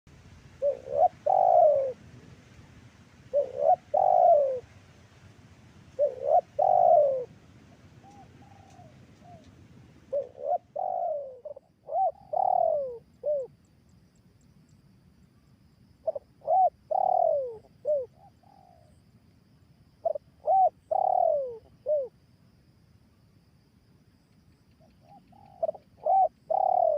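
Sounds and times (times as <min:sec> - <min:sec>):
dove cooing: 0:00.5 - 0:02.1, 0:03.3 - 0:04.8, 0:05.9 - 0:13.6, 0:16.0 - 0:19.0, 0:20.0 - 0:22.2, 0:24.8 - 0:26.9.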